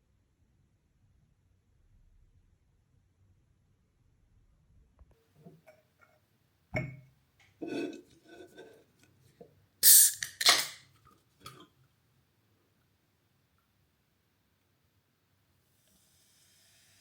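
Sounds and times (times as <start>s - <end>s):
objects clinking and clattering: 10.1s - 10.8s.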